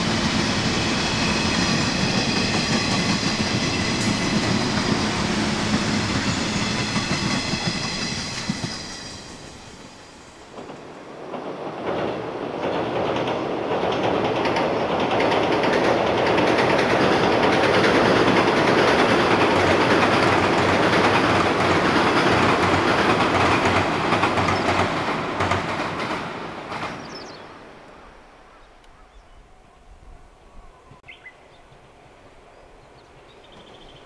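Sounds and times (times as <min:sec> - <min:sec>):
clickety-clack over rail joints: 0:00.0 - 0:09.0, 0:10.5 - 0:27.4
train wheels rumbling over bridge: 0:00.0 - 0:27.9.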